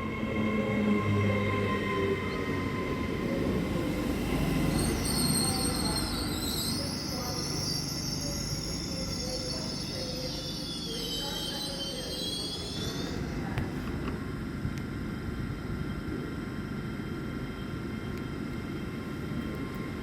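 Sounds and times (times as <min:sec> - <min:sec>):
train running hum: 0:00.0 - 0:20.0
high-pitched wheel squeal: 0:04.7 - 0:13.2.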